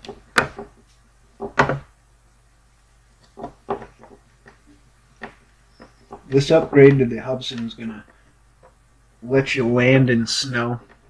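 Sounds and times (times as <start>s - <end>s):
plastic parts clicking and knocking: 0.0s - 0.8s, 1.4s - 1.9s, 3.2s - 4.6s, 5.2s - 7.0s.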